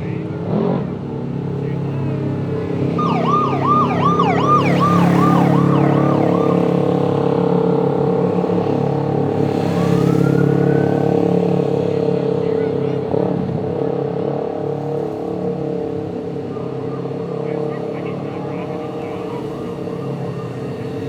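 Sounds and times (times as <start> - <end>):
emergency vehicle siren: 2.7 - 11.9, 16.6 - 21.0.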